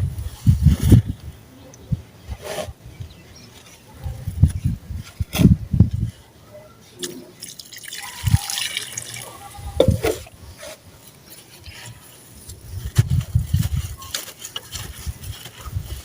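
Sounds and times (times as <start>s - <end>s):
water pouring onto sand: 7.4s - 9.5s.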